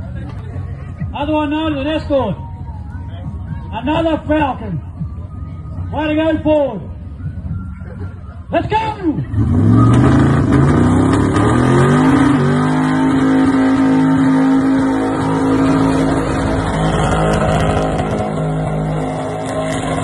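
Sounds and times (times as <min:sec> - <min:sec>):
car engine revving: 0:09.2 - 0:20.0.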